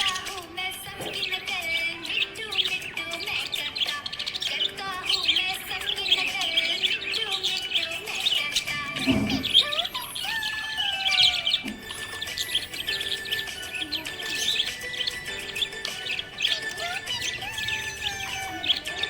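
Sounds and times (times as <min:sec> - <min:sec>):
budgerigars chirping: 0:00.0 - 0:19.0.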